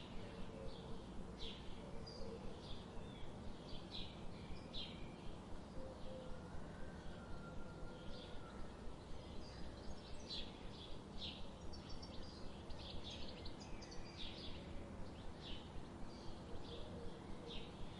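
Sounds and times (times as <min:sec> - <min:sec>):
pulsing low outdoor background: 0:00.0 - 0:17.9
small birds chirping: 0:08.2 - 0:17.9.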